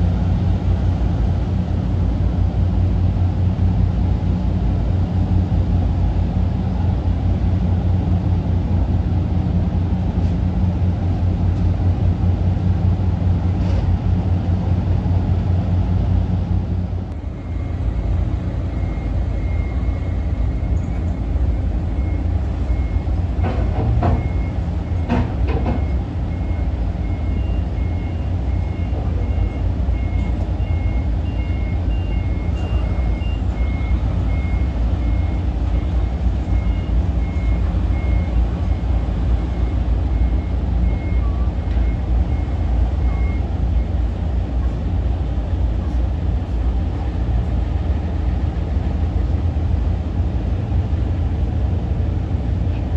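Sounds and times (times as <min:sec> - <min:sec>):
ferry engine rumble: 0:00.0 - 0:52.9
electronic warning beep: 0:17.2 - 0:44.0.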